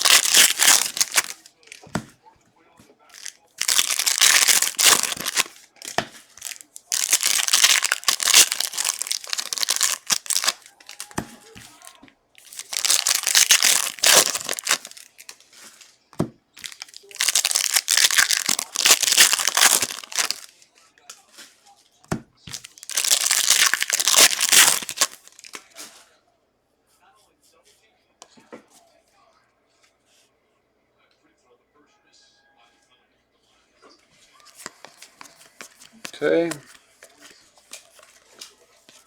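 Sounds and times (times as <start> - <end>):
card pack wrappers crinkling and tearing: 0.0 - 2.1, 3.1 - 21.2, 22.4 - 26.0, 34.4 - 39.0.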